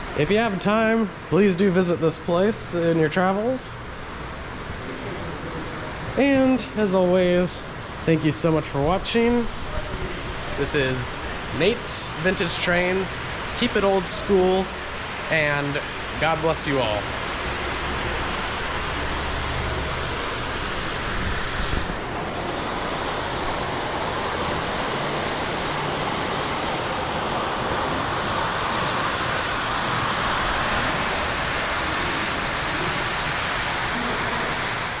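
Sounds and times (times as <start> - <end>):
steady rushing noise: 0.0 - 35.0.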